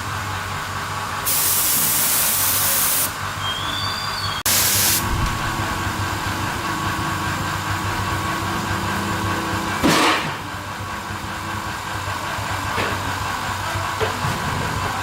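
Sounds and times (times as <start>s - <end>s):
truck engine idling: 4.5s - 13.9s.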